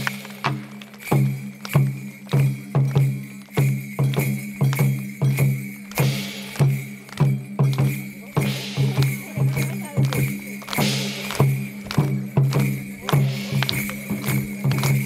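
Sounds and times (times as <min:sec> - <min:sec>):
drum beat: 0:00.0 - 0:15.0
jingling bells: 0:00.0 - 0:15.0.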